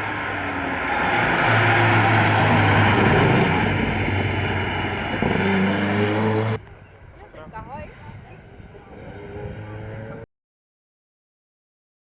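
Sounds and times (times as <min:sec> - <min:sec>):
rally car engine running hard: 0:00.0 - 0:06.6.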